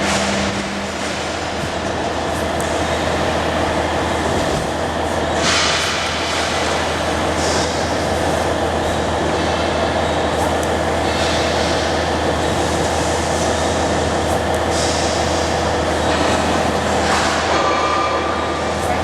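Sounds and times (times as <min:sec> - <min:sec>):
low hum: 0:00.0 - 0:05.2
laser cutting machine drone: 0:00.0 - 0:19.0.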